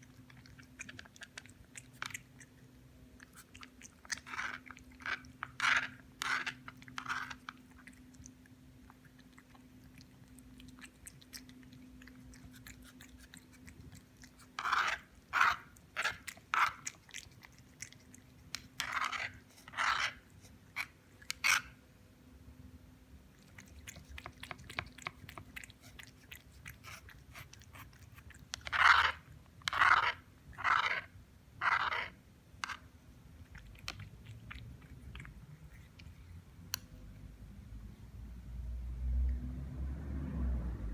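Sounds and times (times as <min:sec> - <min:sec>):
cat crunching dry biscuits: 0:00.0 - 0:21.7, 0:23.4 - 0:31.0.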